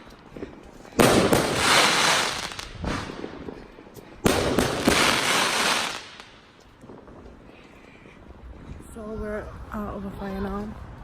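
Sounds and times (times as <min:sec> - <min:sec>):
fireworks crackling: 0:00.0 - 0:07.5
firework bang: 0:01.0 - 0:03.4.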